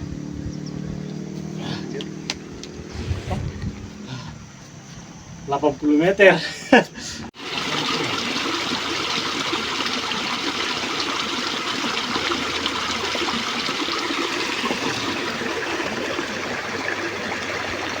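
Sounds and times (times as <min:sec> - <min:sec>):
running water trickling: 0:07.4 - 0:18.0.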